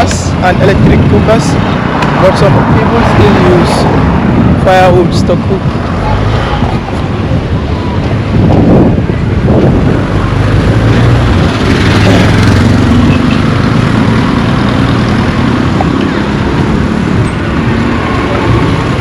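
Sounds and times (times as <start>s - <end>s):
steady noisy rumble: 0.0s - 12.9s.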